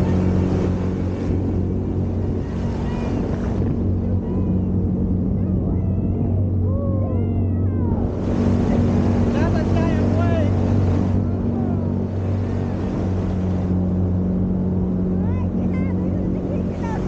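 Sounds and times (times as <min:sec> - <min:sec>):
jet kayak motor humming: 0:00.0 - 0:17.0
water rushing along hull: 0:00.0 - 0:17.0.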